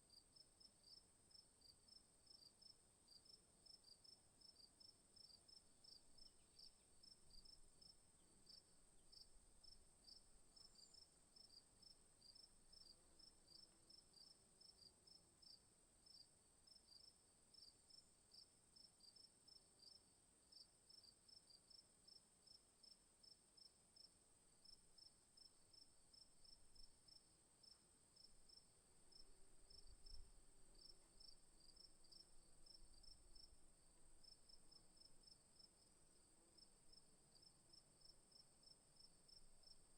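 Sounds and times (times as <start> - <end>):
crickets chirping: 1.9 - 16.2, 24.0 - 39.9.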